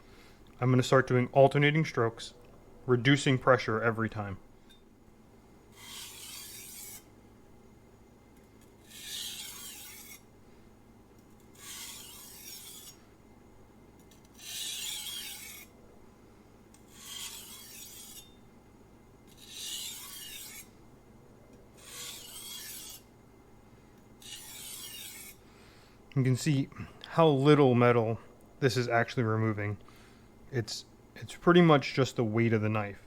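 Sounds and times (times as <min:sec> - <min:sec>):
knife scraping on whetstone: 0:05.7 - 0:07.1, 0:08.8 - 0:10.3, 0:11.5 - 0:13.0, 0:14.3 - 0:15.7, 0:16.9 - 0:18.4, 0:19.3 - 0:20.7, 0:21.7 - 0:23.1, 0:24.2 - 0:25.4.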